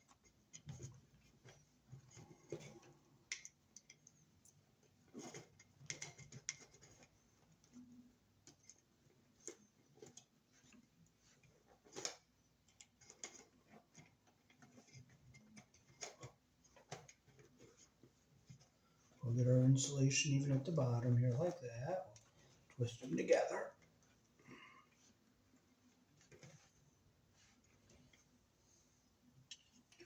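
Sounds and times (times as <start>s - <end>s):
wires clicking and rustling: 0.0s - 30.0s.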